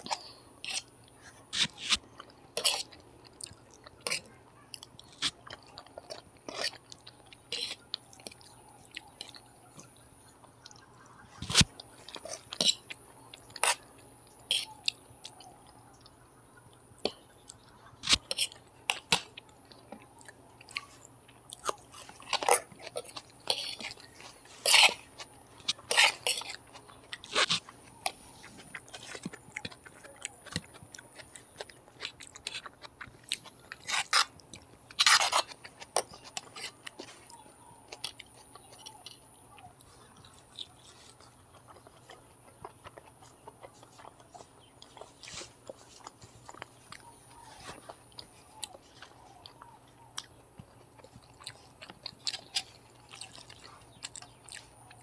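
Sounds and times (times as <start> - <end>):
sharp crunches: 0.0 - 2.0, 11.4 - 13.8, 20.7 - 39.1
close chewing and mouth clicks: 0.0 - 55.0.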